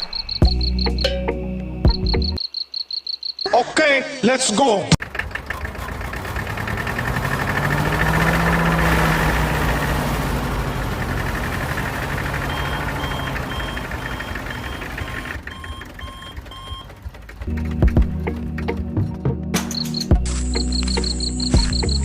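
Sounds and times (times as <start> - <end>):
electronic reversing beeps: 0.0 - 1.3, 1.9 - 3.6, 12.3 - 16.9, 19.7 - 22.0
small tractor motor running: 5.0 - 19.0.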